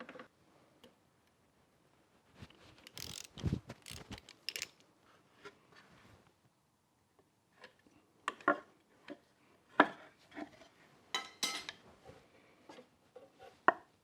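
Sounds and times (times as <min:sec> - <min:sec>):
wrench metallic clicks and clanks: 0:02.8 - 0:04.8.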